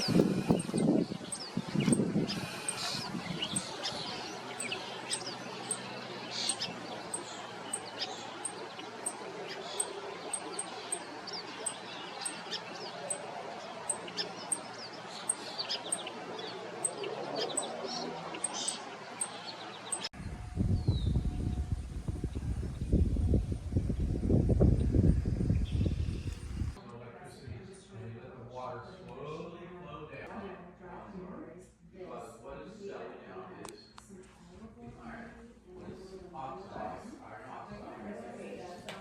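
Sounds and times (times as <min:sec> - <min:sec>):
wild birds chirping: 0:00.0 - 0:23.0
steady outdoor hiss: 0:00.0 - 0:26.8
low rumbling noise: 0:20.2 - 0:26.8.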